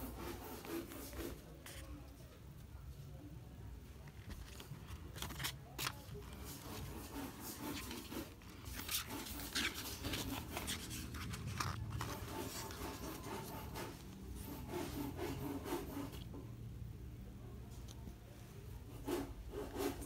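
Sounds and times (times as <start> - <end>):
paper rubbing and sliding: 0.0 - 2.0, 4.0 - 16.3.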